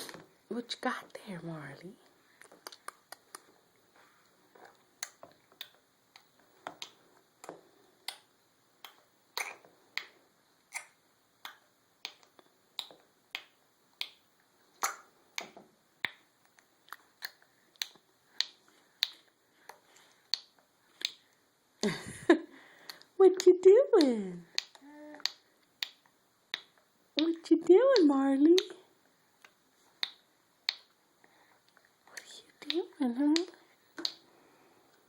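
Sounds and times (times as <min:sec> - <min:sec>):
baby making clicking sounds: 0:05.0 - 0:05.8, 0:08.0 - 0:14.2, 0:14.8 - 0:16.2, 0:23.4 - 0:27.4, 0:28.0 - 0:28.8, 0:32.2 - 0:34.2.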